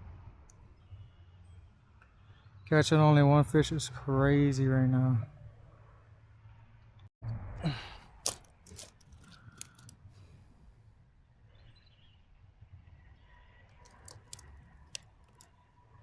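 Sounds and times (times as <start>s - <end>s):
fishing reel clicks: 8.2s - 9.9s, 13.9s - 15.4s.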